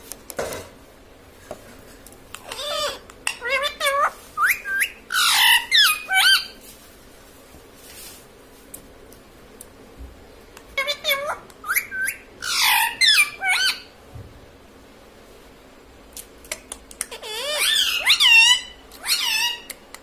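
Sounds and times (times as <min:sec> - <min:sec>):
parrot squawking: 0:02.4 - 0:06.6, 0:10.7 - 0:13.9, 0:17.1 - 0:19.8.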